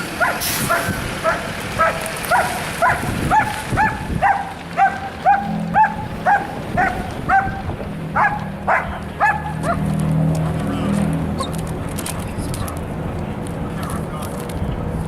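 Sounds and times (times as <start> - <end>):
dog barking: 0.2 - 9.9.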